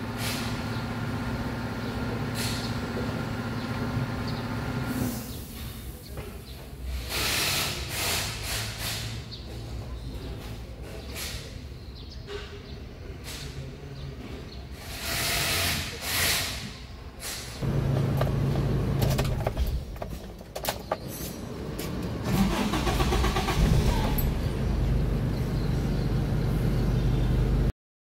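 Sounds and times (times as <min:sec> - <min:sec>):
car engine idling: 0:17.6 - 0:20.4
car engine cranking: 0:17.6 - 0:21.3, 0:22.0 - 0:25.0.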